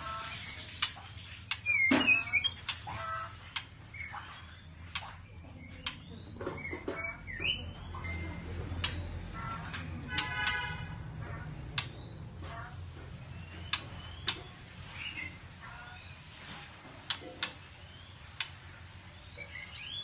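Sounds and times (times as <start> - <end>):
bird chirps and whistles: 1.6 - 2.6
sharp clicks: 11.7 - 12.1.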